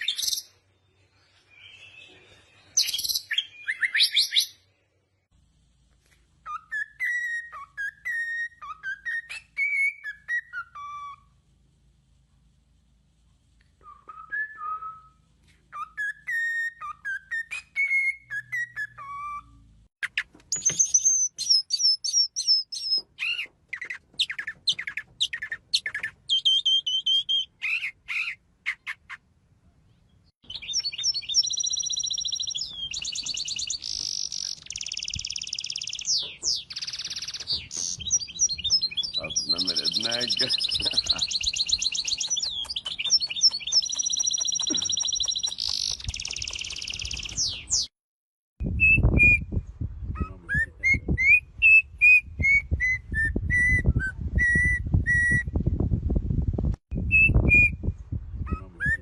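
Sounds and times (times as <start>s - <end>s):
rapid high chirps: 30.4s - 47.9s
songbird warbling phrase: 39.0s - 41.4s.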